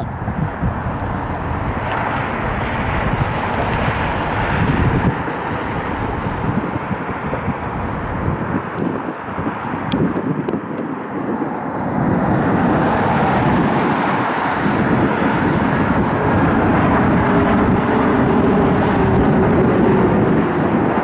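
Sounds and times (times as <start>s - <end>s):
jet engines at takeoff power: 0.0s - 21.0s
wind on microphone: 0.0s - 21.0s.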